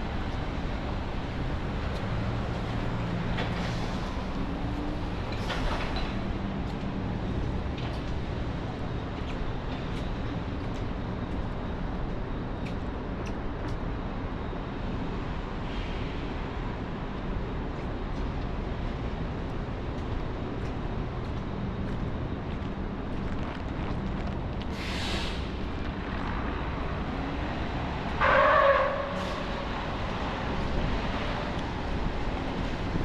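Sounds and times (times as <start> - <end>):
traffic passing on wet street: 0.0 - 11.9, 18.6 - 33.0.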